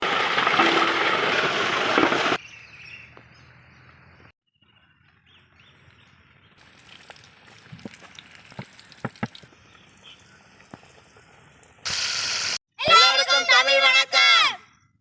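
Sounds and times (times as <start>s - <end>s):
small birds chirping: 2.4s - 7.3s, 9.2s - 11.0s
loud steady hiss: 11.9s - 12.6s.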